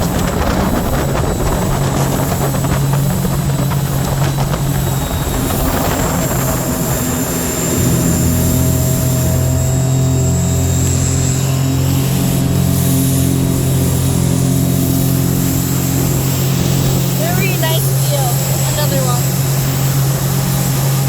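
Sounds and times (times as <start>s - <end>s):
boat engine droning: 0.0s - 21.0s
water and wind noise: 0.0s - 21.0s.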